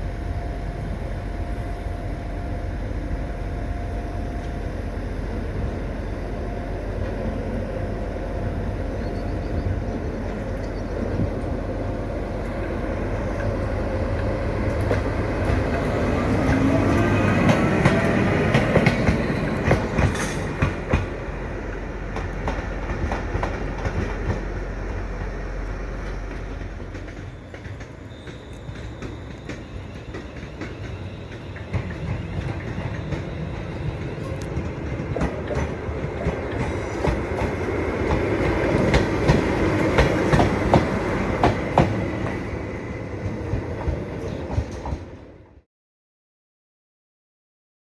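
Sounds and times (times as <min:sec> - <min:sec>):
electric locomotive running: 0:00.0 - 0:45.3
wheels clicking over rail joints: 0:12.4 - 0:21.2, 0:26.0 - 0:42.5.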